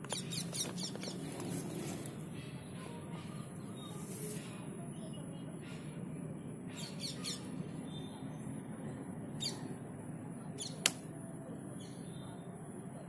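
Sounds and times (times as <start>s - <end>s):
bird chirps: 0.0s - 4.1s, 4.8s - 12.7s
sharp click: 10.8s - 11.1s.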